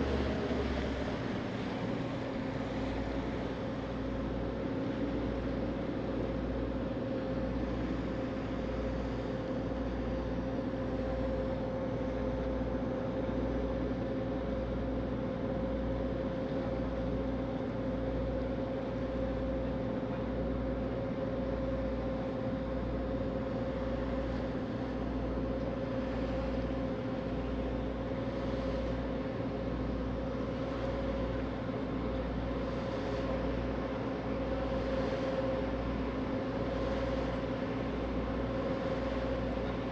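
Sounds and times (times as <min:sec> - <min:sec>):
diesel engines droning: 0:00.0 - 0:02.1.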